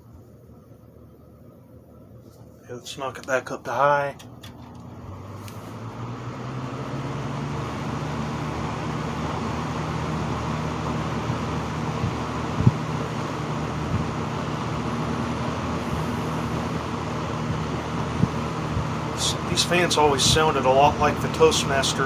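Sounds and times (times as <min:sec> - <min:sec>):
box fan motor hum: 0:00.0 - 0:22.0
rush of air: 0:15.6 - 0:19.2.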